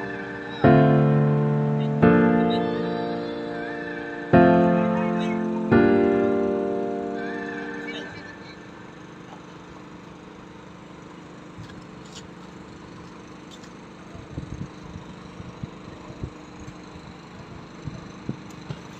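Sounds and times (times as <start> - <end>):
piano chord: 0.0 - 9.0.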